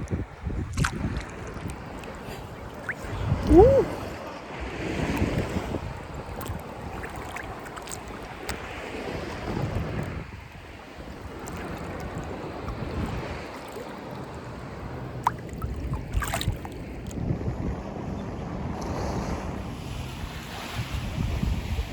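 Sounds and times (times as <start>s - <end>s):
wind buffeting microphone: 0.0s - 21.9s
ocean surf washing: 0.3s - 17.1s.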